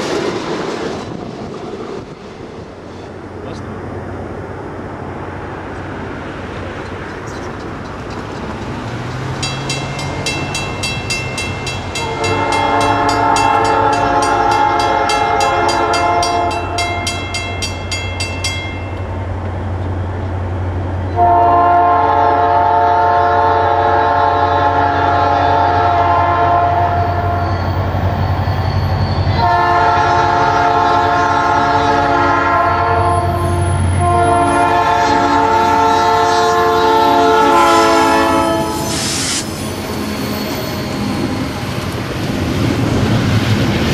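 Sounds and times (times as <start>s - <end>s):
bell ringing rapidly: 9.4s - 18.9s
locomotive horn: 11.9s - 17.1s, 21.1s - 27.6s, 29.2s - 41.3s.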